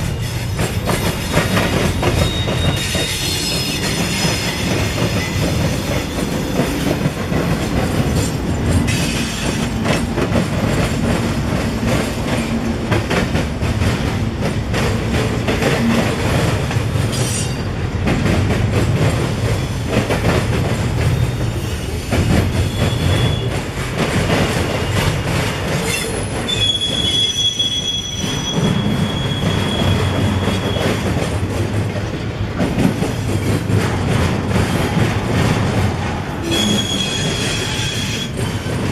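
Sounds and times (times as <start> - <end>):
high wheel squeal: 0.0 - 5.4, 24.8 - 31.1, 36.4 - 38.6
freight train rumble: 0.0 - 38.9.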